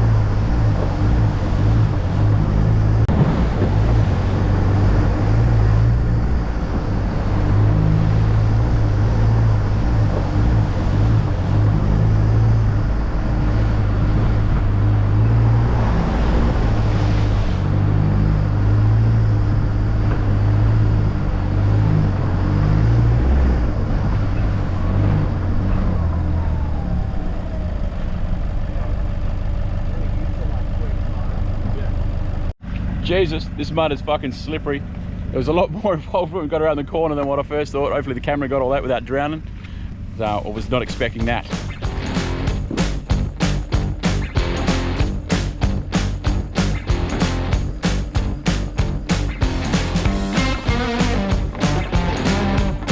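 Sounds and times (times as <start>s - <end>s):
rush of noise: 40.2s - 52.9s.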